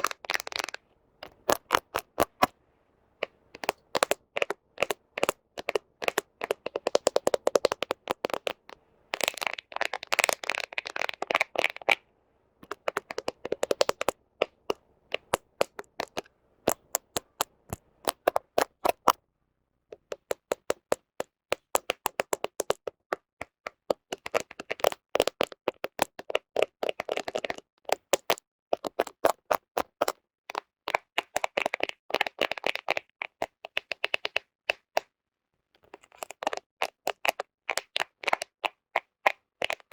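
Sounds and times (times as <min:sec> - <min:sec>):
fingernails tapping on phone: 0:03.2 - 0:12.0, 0:12.6 - 0:19.2, 0:20.0 - 0:22.9.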